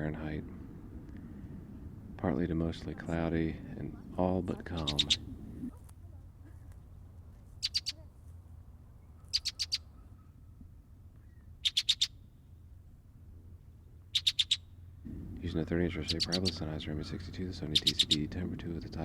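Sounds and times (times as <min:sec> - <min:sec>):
faint low hum: 0:00.0 - 0:19.0
blackbird chattering clicks: 0:04.8 - 0:05.3, 0:07.6 - 0:08.0, 0:09.2 - 0:10.0, 0:11.2 - 0:12.2, 0:14.1 - 0:18.4.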